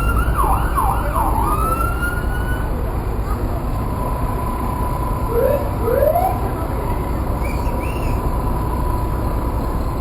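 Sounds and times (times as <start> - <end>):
high siren chirps: 0.0 - 2.7, 4.4 - 6.5
siren whooping: 0.0 - 2.7, 5.3 - 6.5.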